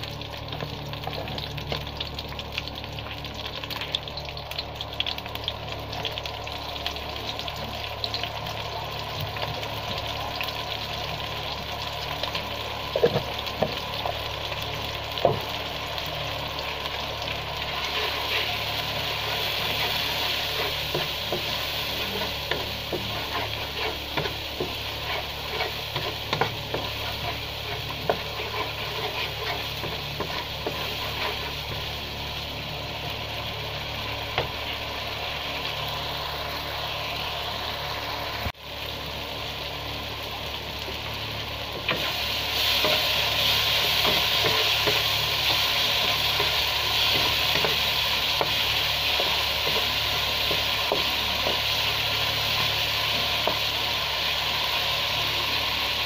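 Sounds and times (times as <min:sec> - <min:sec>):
spices sizzling in oil: 0:00.0 - 0:56.0
wooden spatula scraping pan: 0:17.8 - 0:31.8.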